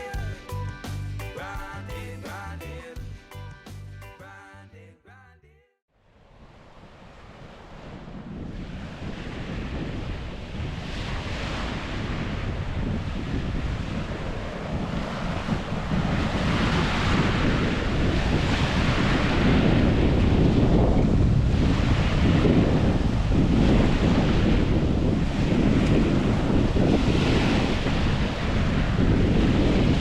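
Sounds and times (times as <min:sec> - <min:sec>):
ocean waves washing onto beach: 0:06.1 - 0:30.0
wind buffeting microphone: 0:06.3 - 0:30.0.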